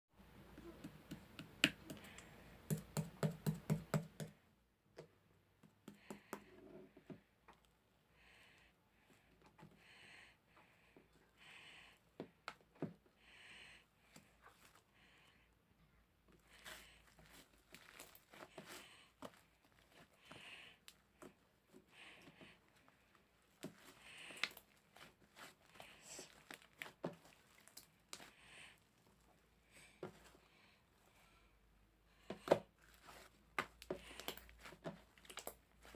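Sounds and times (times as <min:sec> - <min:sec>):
crinkly rustles: 0:16.6 - 0:20.1.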